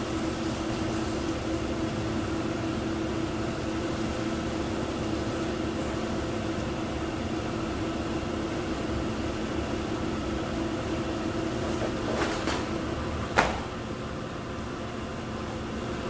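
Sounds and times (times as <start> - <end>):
machinery humming: 0.0 - 16.0
sharp knock: 13.4 - 13.7.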